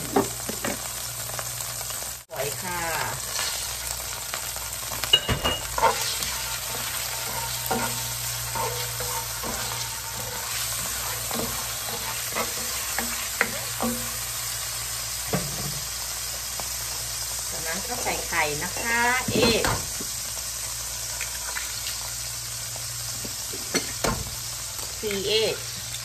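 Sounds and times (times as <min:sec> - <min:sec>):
shrimp sizzling in hot oil: 0:00.0 - 0:26.0
spatula scraping a pan: 0:03.2 - 0:14.5.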